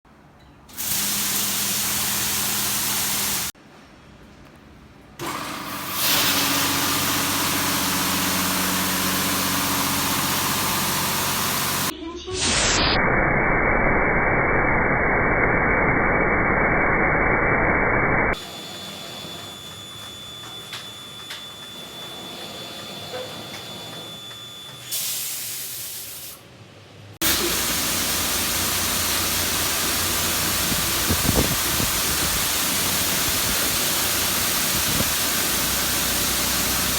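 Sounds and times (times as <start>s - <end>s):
water jets spraying: 0.7s - 3.6s, 6.0s - 11.9s, 27.2s - 36.9s.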